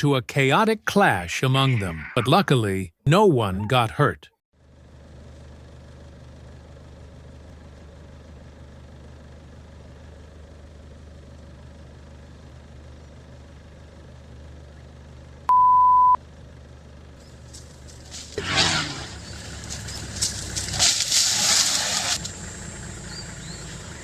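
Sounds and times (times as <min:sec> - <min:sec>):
censor bleep: 0:15.5 - 0:16.2
loud rough noise: 0:18.2 - 0:22.3.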